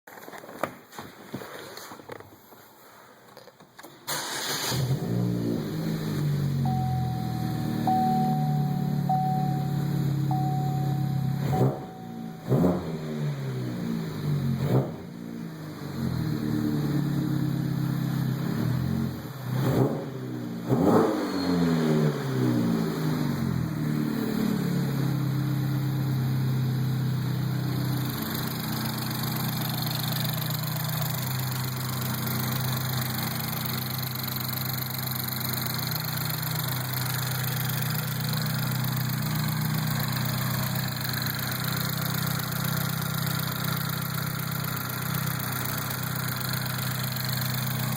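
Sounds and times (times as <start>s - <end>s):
car engine idling: 4.2s - 19.4s, 22.9s - 47.9s
car engine revving: 4.2s - 34.0s.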